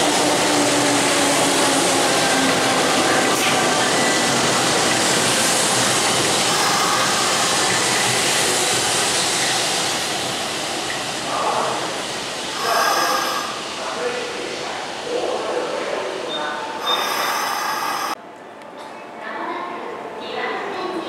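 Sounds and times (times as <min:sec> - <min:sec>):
train wheels rumbling on rail: 0:00.0 - 0:18.2.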